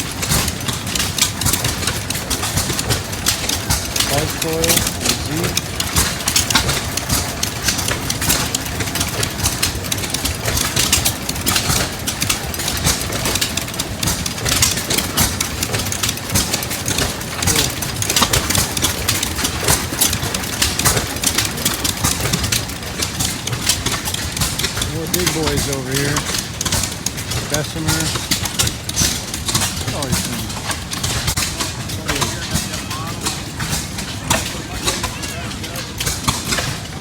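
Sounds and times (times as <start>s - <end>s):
sharp exhaust pops: 0.0s - 37.0s
stationary engines chugging: 0.0s - 37.0s.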